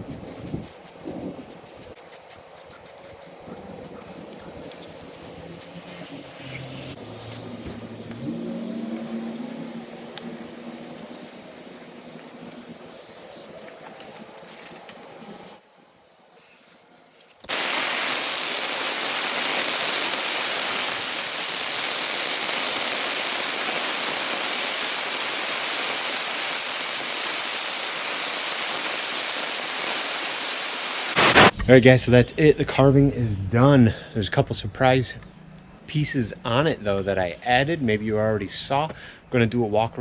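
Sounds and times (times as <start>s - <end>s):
heavy rain pouring: 17.5s - 31.5s.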